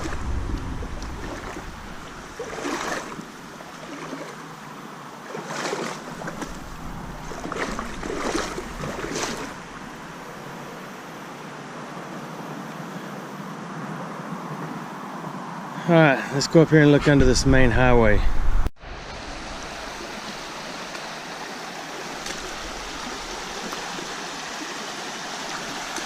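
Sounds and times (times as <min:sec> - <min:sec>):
stream flowing: 0:00.0 - 0:17.0, 0:18.8 - 0:26.0
boots splashing through water: 0:01.0 - 0:04.6, 0:05.2 - 0:10.2, 0:22.2 - 0:24.2.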